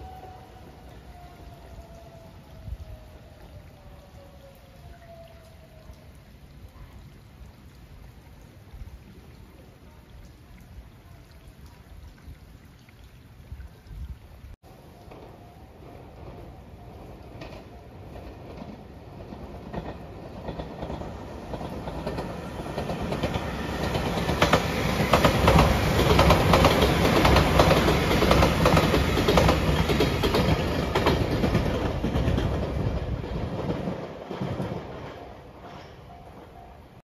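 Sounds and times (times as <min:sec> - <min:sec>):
train passing at speed: 0:00.0 - 0:04.4, 0:14.6 - 0:37.0
wheel clacks over rail joints: 0:16.2 - 0:36.1.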